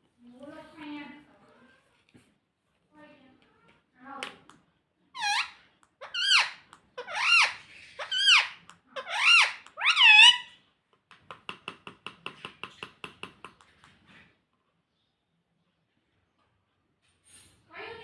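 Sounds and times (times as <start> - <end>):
parakeet clicking chatter: 5.2 - 10.5
parakeet squawking: 5.2 - 10.6.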